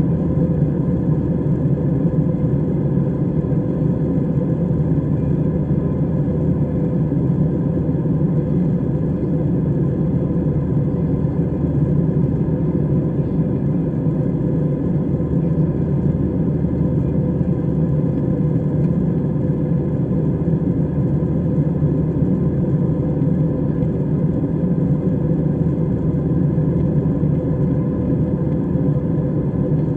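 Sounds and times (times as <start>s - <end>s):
airliner cabin engine rumble: 0.0s - 29.9s.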